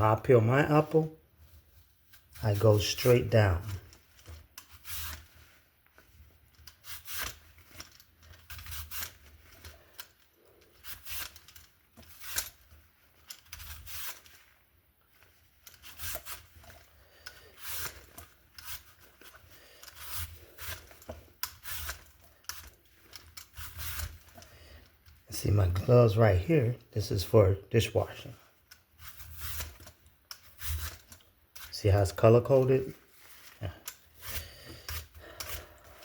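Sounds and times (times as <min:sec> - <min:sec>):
peeler scraping apple skin: 0:02.0 - 0:05.5, 0:06.1 - 0:14.6, 0:15.3 - 0:25.8, 0:28.1 - 0:36.0.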